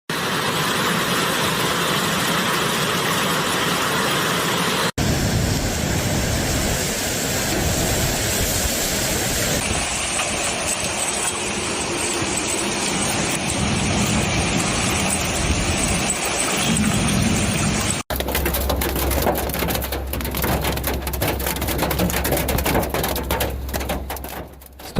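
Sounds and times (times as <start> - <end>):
wind: 0.1 - 24.9
rain: 5.0 - 24.7.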